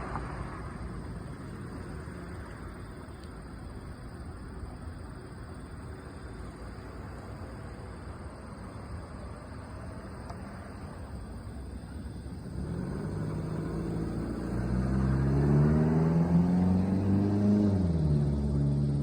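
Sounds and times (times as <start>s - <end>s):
vehicle engine: 0.0s - 8.3s, 9.6s - 19.0s.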